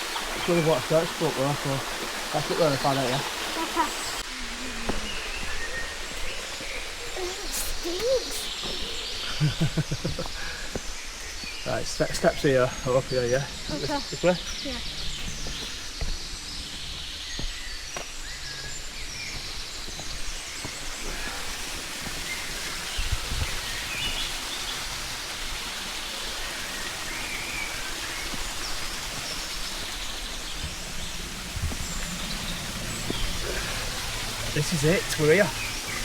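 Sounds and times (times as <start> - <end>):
outdoor rushing hiss: 0.0 - 36.0
small birds chirping: 0.0 - 36.0.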